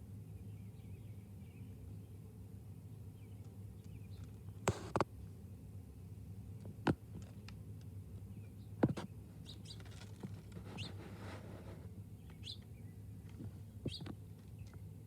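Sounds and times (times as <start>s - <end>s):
steady low hum: 0.0s - 15.0s
small birds chirping: 2.9s - 5.0s, 8.2s - 11.4s, 12.0s - 14.9s.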